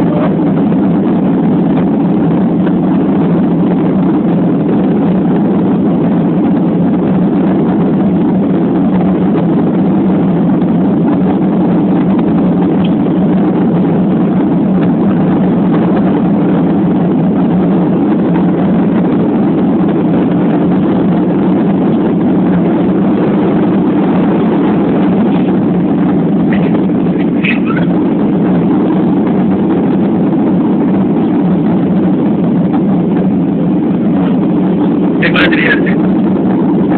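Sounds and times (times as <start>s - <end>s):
airliner engines and rushing air: 0.0s - 36.9s.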